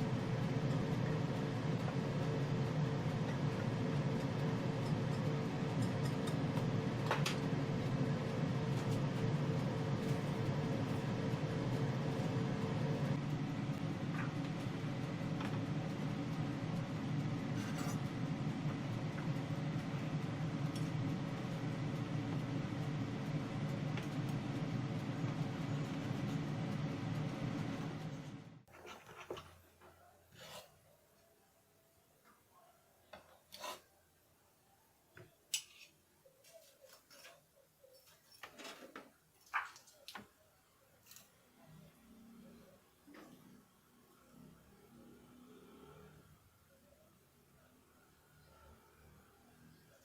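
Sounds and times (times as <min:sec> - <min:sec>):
low background hum: 0:00.0 - 0:33.2.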